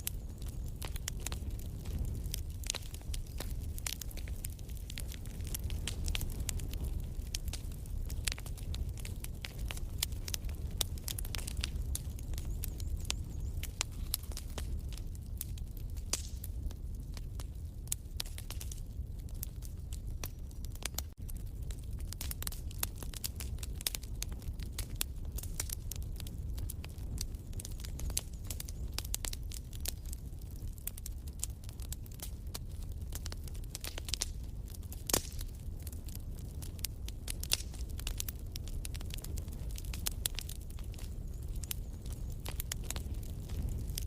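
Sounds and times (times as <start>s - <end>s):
low rumble of flames: 0.0s - 44.0s
wood fire crackling: 0.0s - 44.0s.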